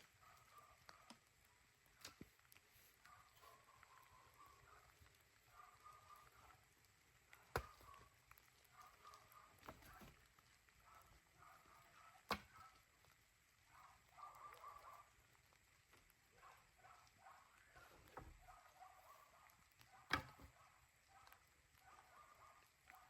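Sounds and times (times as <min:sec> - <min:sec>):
axe striking firewood: 0:07.5 - 0:07.8, 0:20.1 - 0:20.5.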